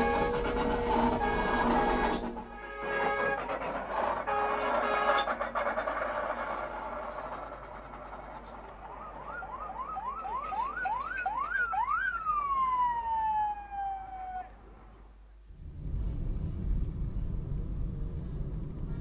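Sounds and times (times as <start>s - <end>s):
emergency vehicle siren: 0.0s - 3.4s, 8.6s - 14.6s.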